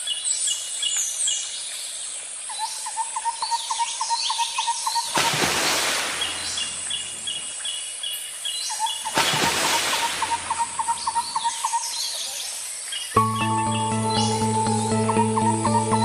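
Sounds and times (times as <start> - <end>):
birds chirping and calling: 6.2 - 16.0.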